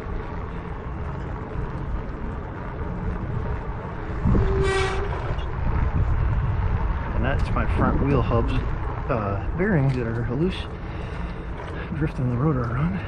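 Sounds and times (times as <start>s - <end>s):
wind: 0.0s - 13.0s
bike disc brake squeal: 4.2s - 5.5s.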